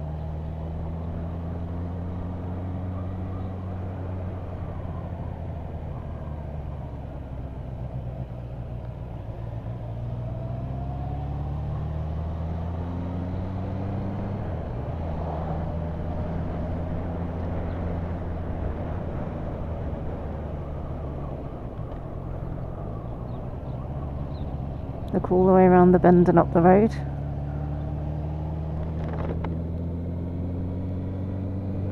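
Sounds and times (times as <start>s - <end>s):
road and wind rumble: 0.0s - 31.9s
motorcycle engine running: 22.0s - 31.9s.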